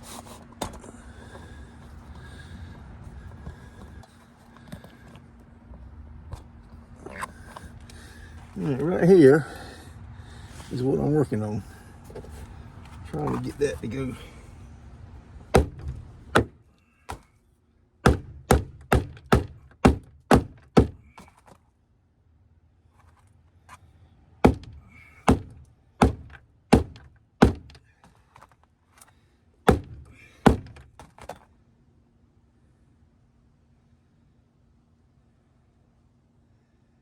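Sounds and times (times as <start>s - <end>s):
blows striking car door: 15.5s - 17.2s, 18.0s - 21.2s, 24.4s - 27.8s, 29.7s - 31.1s.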